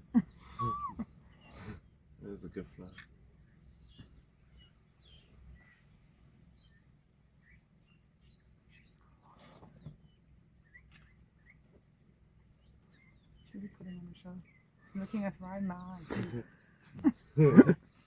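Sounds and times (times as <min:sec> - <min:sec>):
bird chirps: 0:02.5 - 0:16.0.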